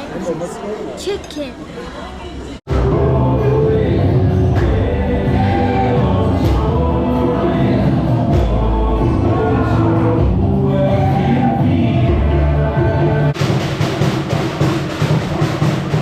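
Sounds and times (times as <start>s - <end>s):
choir singing held notes: 2.7s - 13.4s.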